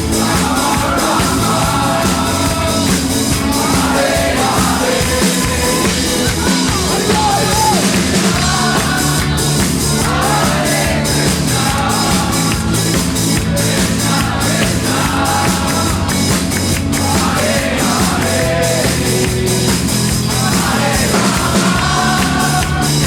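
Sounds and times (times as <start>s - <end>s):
drum kit beat: 0.0s - 23.0s
loud rock music: 0.0s - 23.0s
person singing and shouting: 3.5s - 10.6s.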